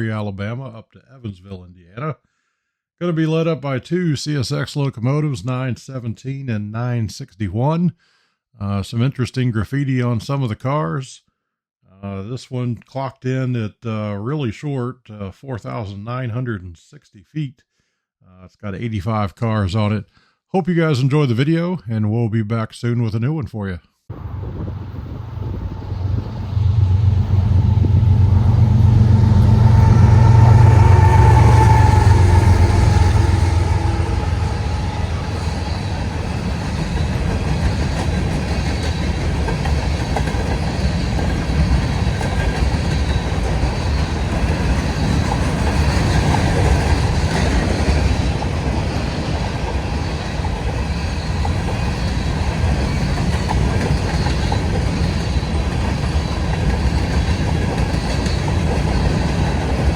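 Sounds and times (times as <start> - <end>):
diesel locomotive engines droning: 24.1 - 59.9
freight cars clickety-clack: 24.2 - 59.9.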